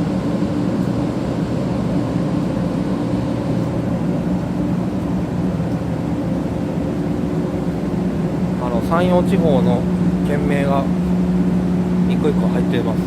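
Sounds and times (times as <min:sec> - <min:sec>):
train equipment humming: 0:00.0 - 0:13.0.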